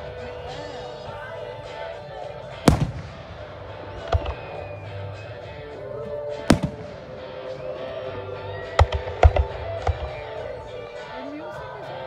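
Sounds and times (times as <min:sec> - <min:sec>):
background music: 0:00.0 - 0:12.0
fireworks banging: 0:02.5 - 0:08.0, 0:08.6 - 0:10.4.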